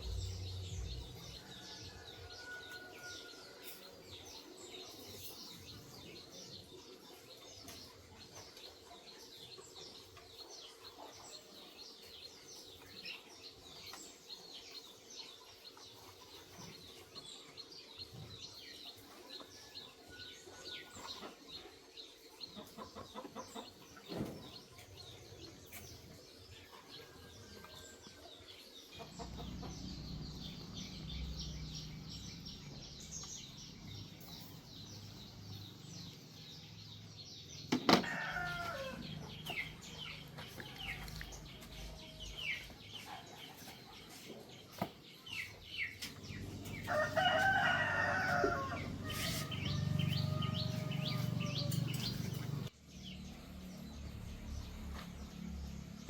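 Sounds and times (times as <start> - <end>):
rooster crowing: 1.3 - 3.8, 38.0 - 39.2, 46.6 - 52.7
chickens clucking: 14.8 - 30.6.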